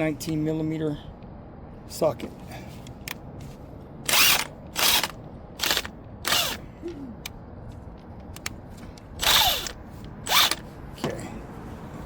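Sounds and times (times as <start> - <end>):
impact drill short bursts: 4.1 - 6.6, 9.2 - 10.6.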